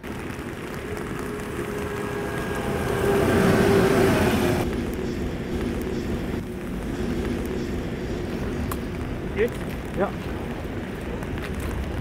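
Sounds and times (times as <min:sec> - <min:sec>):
train rumble with held tone: 0:00.0 - 0:12.0
steady hum: 0:00.1 - 0:09.4.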